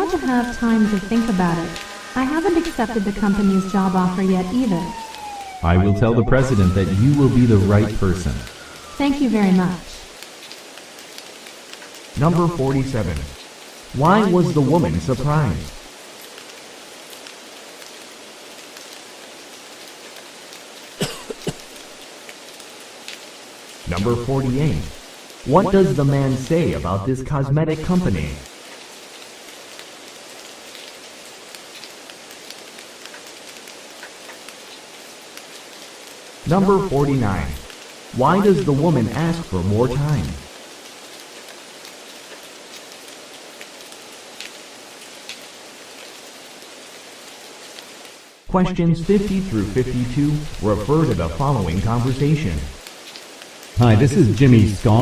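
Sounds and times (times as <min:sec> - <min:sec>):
rain-like background hiss: 0:00.0 - 0:55.0
loud coughs: 0:21.0 - 0:21.7.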